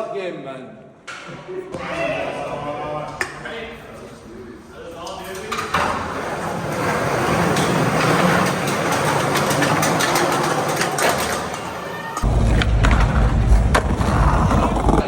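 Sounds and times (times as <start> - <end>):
skateboard wheels rolling on pavement: 5.7 - 15.0
loud low rumble: 12.2 - 15.0.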